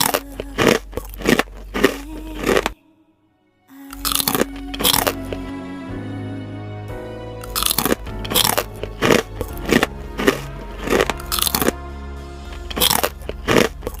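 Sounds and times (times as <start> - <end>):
crunching of fried food: 0.0 - 2.7, 4.0 - 5.2, 7.4 - 11.8, 12.6 - 14.0
background music: 0.0 - 14.0.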